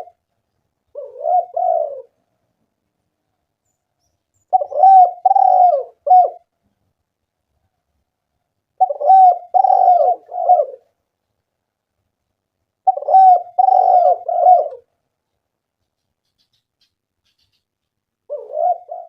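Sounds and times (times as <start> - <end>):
dove cooing: 0.0 - 0.2, 0.9 - 2.2, 4.5 - 6.5, 8.8 - 11.0, 12.8 - 14.9, 18.2 - 19.0.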